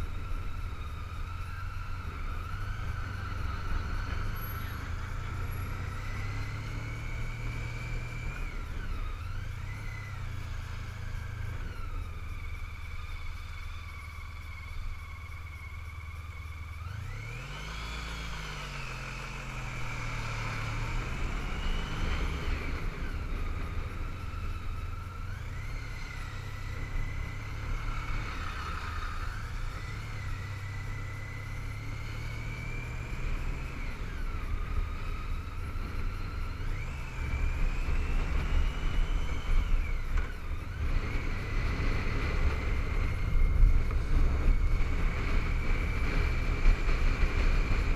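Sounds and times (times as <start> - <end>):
motorcycle engine revving: 0.0 - 47.9
wind rushing over microphone: 33.7 - 47.9.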